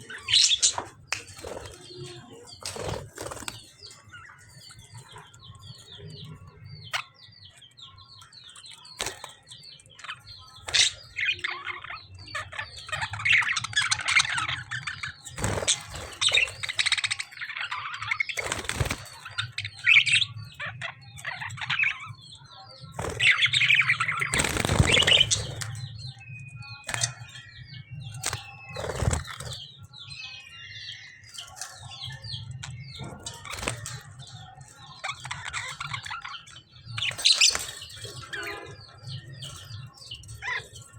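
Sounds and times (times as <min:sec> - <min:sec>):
birds chirping rapidly: 0:00.0 - 0:40.9
wing flapping and scuffling: 0:00.6 - 0:03.9, 0:15.4 - 0:17.0, 0:18.4 - 0:19.3, 0:24.2 - 0:25.8, 0:28.2 - 0:29.6.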